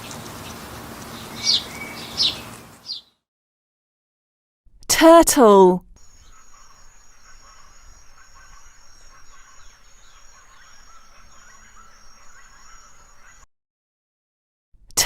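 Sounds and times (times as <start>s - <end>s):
small birds chirping: 0.0s - 3.2s, 6.0s - 13.5s
high-pitched insect trill: 6.0s - 9.5s.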